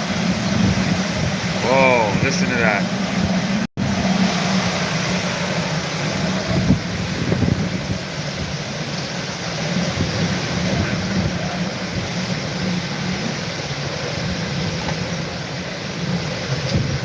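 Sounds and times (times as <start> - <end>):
wind rumble on microphone: 0.0 - 1.6, 2.9 - 17.0
strong wind rushing: 0.0 - 8.8.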